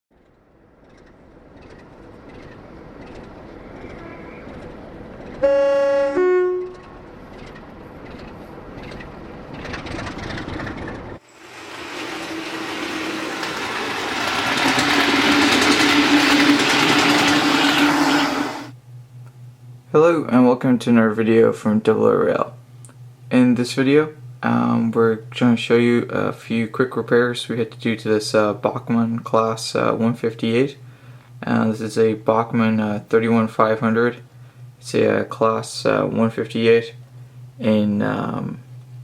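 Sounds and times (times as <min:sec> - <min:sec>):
two-note train horn blast: 0:05.4 - 0:07.1
train rushing past: 0:11.2 - 0:18.7.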